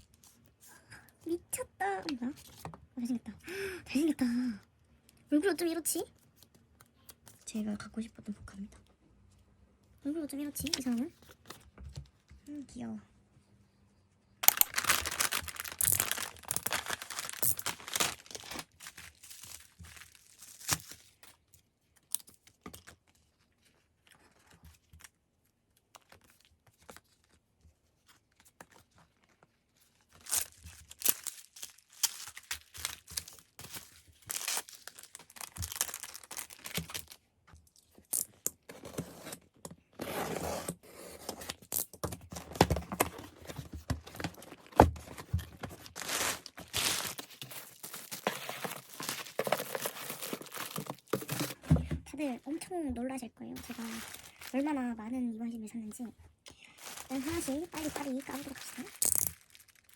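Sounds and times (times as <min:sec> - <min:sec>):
packaging tearing and crinkling: 0:14.4 - 0:21.3, 0:30.1 - 0:37.2, 0:41.4 - 0:51.7, 0:53.6 - 0:54.8, 0:56.8 - 0:59.9.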